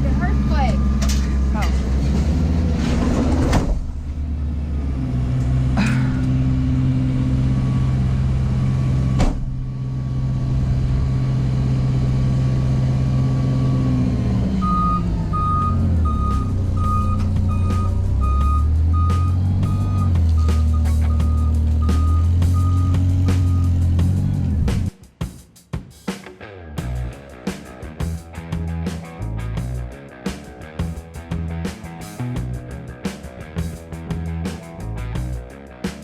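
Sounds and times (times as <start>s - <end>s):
heavy vehicle engine droning: 0.0s - 24.9s
reversing beeper: 0.3s - 1.1s, 7.2s - 11.4s, 14.5s - 23.8s
metal clanks: 1.0s - 4.0s.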